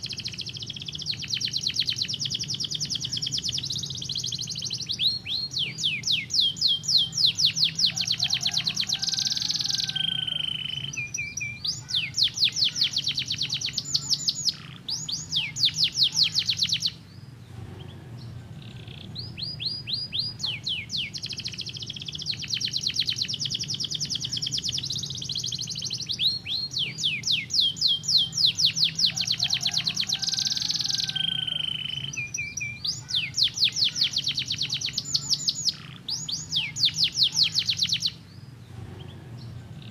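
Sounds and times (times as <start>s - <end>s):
canary singing trills: 0.0s - 39.9s
steady low hum: 9.9s - 29.2s, 33.8s - 39.9s.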